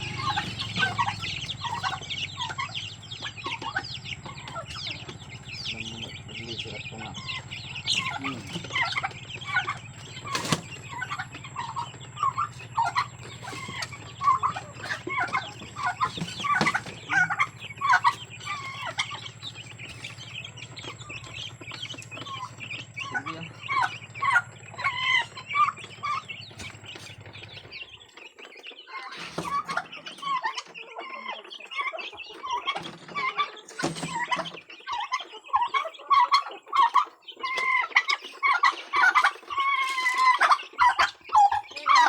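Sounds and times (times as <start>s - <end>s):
low hum: 0.0s - 27.8s
chickens clucking: 0.0s - 42.0s.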